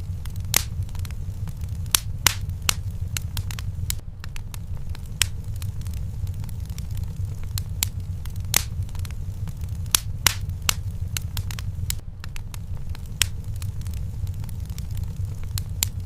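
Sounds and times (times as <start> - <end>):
fire low rumble: 0.0 - 16.0
wood fire crackling: 0.0 - 16.0.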